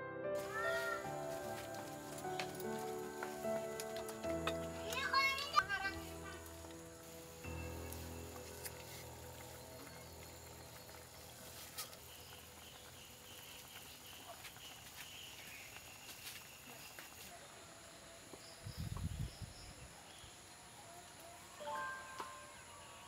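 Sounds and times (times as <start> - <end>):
high insect chirps: 0.4 - 17.3.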